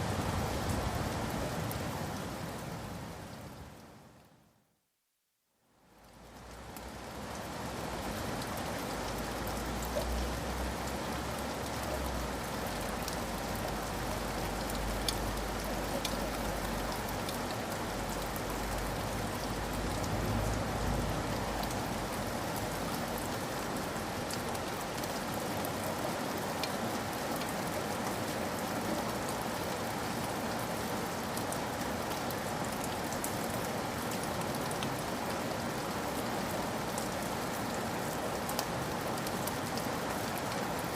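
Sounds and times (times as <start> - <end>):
steady rain: 0.0 - 40.9
sharp drip ticks: 13.0 - 20.2.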